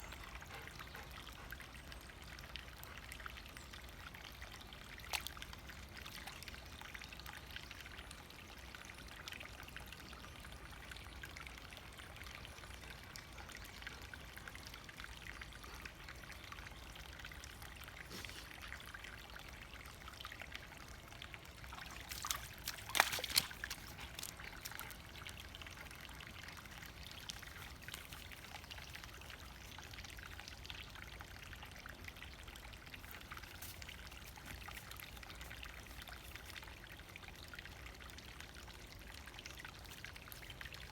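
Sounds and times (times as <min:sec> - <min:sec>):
brook bubbling and trickling: 0:00.0 - 0:40.9
water splash: 0:21.8 - 0:24.9.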